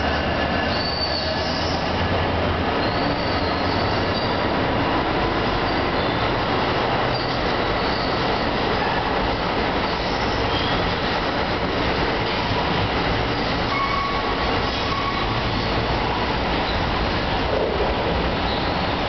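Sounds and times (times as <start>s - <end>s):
train wheels rumbling on rail: 0.0s - 19.0s
faint wheel squeal: 0.7s - 1.9s, 2.8s - 4.4s, 13.7s - 15.7s.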